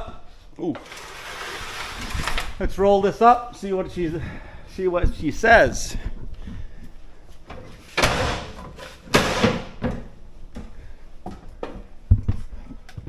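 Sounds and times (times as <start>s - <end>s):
scraping rustles: 0.8s - 3.0s.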